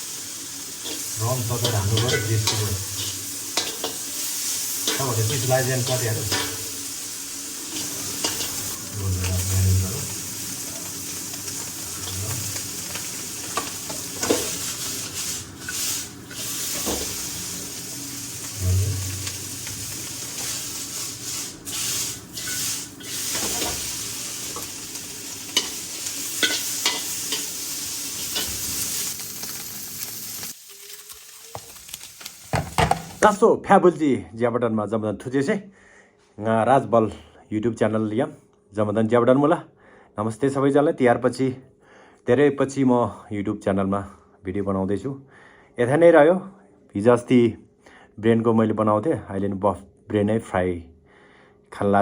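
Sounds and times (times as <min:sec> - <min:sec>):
frying in a pan sizzling: 0:00.0 - 0:33.3.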